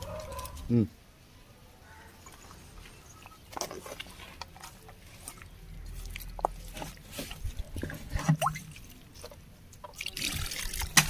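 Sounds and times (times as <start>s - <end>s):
water dripping: 2.2s - 11.0s
wet chicken squishing: 2.3s - 11.0s.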